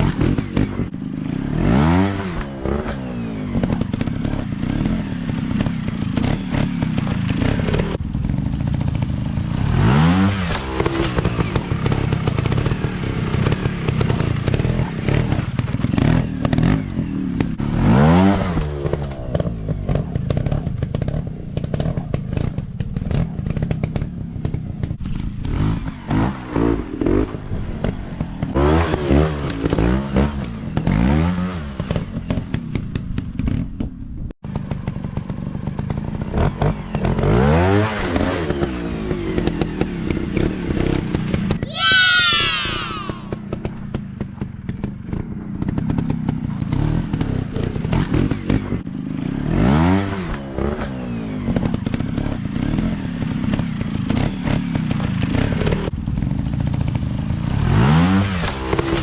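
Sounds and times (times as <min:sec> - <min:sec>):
dirt bike engines revving: 0:00.0 - 0:32.6, 0:37.0 - 0:43.8.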